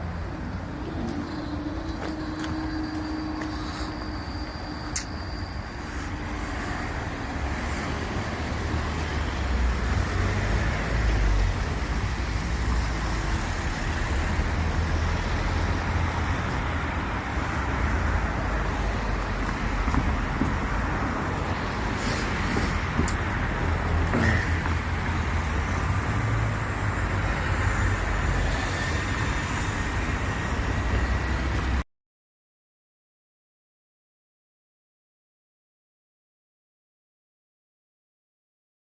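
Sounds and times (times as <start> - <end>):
cars and buses passing: 0.0 - 31.9.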